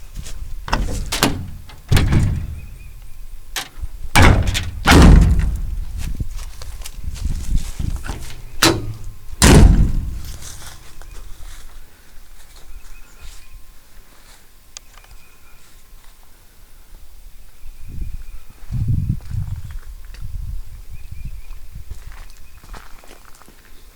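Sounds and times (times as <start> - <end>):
metal doors slamming: 0.2 - 6.0, 7.9 - 10.8
door latch clicks: 0.7 - 5.8, 8.0 - 10.6.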